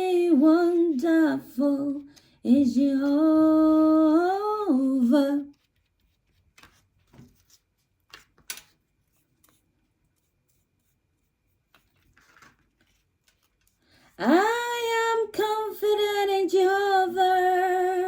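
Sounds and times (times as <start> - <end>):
craft materials rustling and clicking: 11.6 - 13.8.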